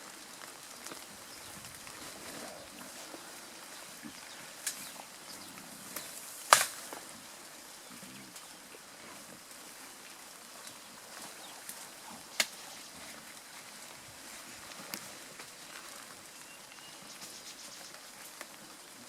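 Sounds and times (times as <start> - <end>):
quiet forest background: 0.0 - 19.0
vegetation snapping: 4.6 - 5.0, 5.9 - 7.0, 12.3 - 12.7.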